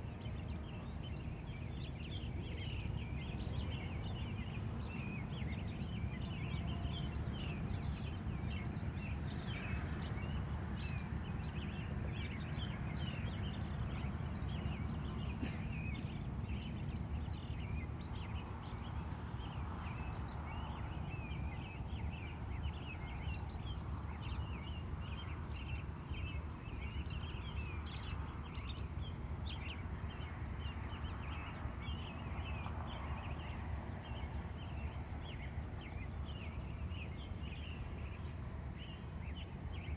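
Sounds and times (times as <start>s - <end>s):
crickets trilling: 0.0s - 39.9s
birds chirping: 0.1s - 20.9s.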